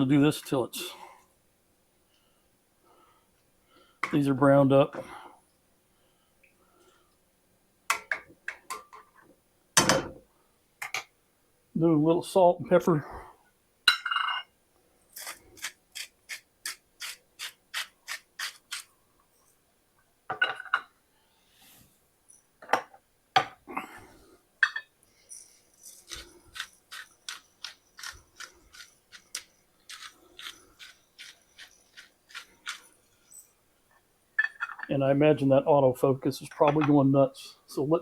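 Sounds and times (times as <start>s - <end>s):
grinder scrapes: 15.2s - 18.9s
pepper grinder rasping: 15.2s - 18.9s, 25.4s - 33.5s.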